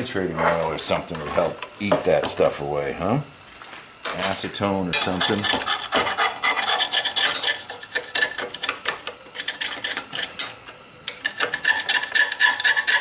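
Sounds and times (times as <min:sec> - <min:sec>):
metal scraper scraping metal: 0:04.9 - 0:13.0.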